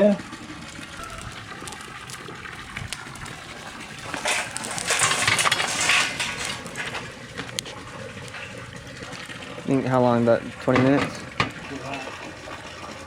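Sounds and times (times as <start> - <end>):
metal cookware clattering: 4.0 - 7.1.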